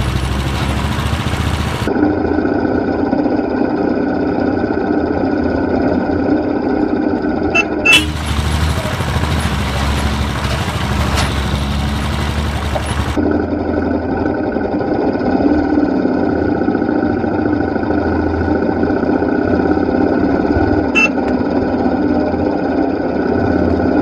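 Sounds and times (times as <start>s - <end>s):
vehicle engines running: 0.0s - 24.0s
brief high horn toots: 7.6s - 8.4s.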